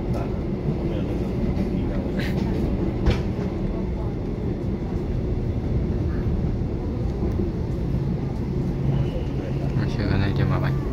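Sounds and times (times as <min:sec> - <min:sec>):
train running noise: 0:00.0 - 0:10.9.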